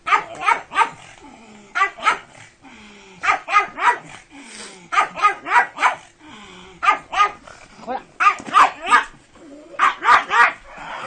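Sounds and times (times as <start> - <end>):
dog barking: 0.0 - 1.0, 1.8 - 2.3, 3.2 - 4.1, 4.9 - 6.1, 6.8 - 7.4, 8.2 - 9.2, 9.8 - 10.7.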